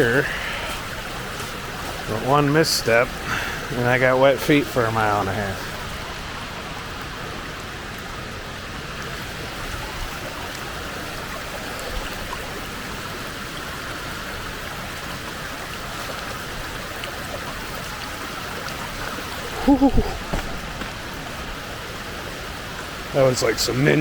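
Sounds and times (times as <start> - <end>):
creek water rushing over rocks: 0.0 - 24.0.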